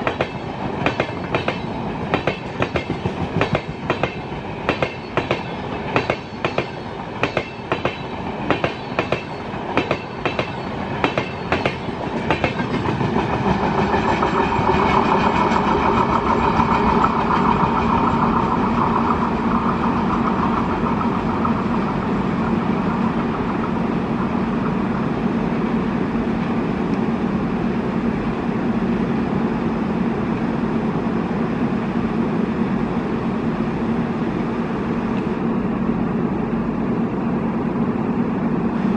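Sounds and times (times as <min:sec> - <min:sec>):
train wheels clicking over rail joints: 0:00.0 - 0:25.0
train rumbling on rails: 0:00.0 - 0:38.9.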